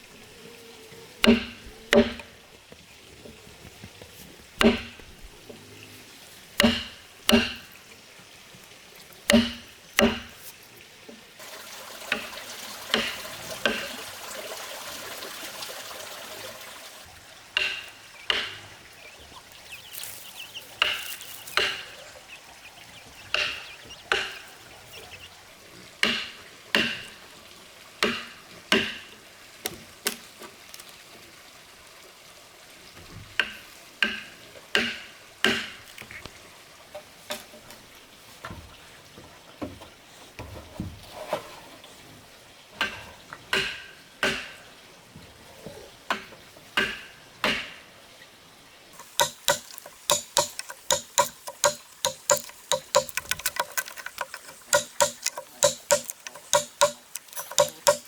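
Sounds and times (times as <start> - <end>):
hand tool striking wood: 1.2 - 2.4, 4.6 - 5.1, 6.6 - 7.7, 9.3 - 10.5, 12.9 - 13.9, 17.6 - 18.7, 20.8 - 21.9, 23.3 - 24.4, 26.0 - 27.1, 33.4 - 35.8, 46.1 - 47.8, 49.0 - 58.0.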